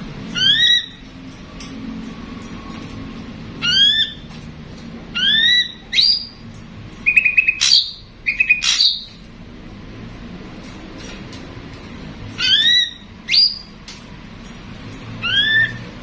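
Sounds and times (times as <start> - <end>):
bird calling: 5.1 - 6.4, 7.0 - 9.2.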